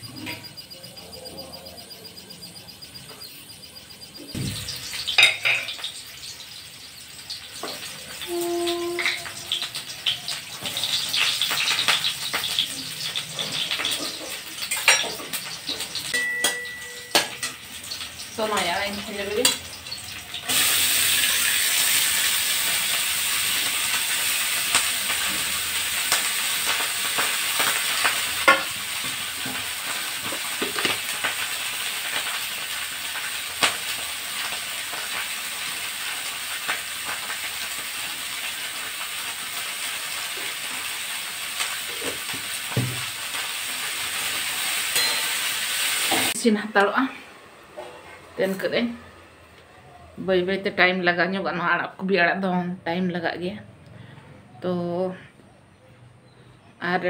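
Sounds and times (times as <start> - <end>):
greens sizzling in hot oil: 4.0 - 49.6
kitchen utensils knocking: 4.4 - 5.8, 45.0 - 45.4.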